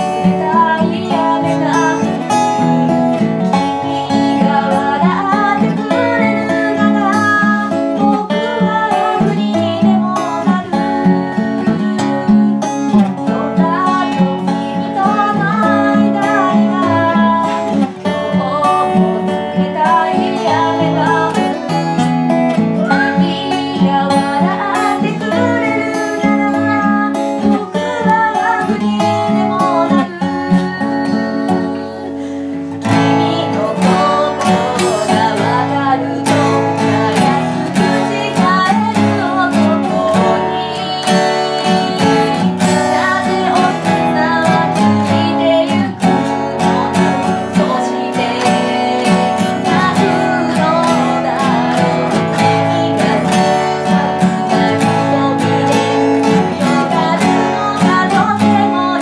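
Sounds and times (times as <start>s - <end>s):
acoustic guitar strumming: 0.0s - 59.0s
person singing: 0.0s - 59.0s.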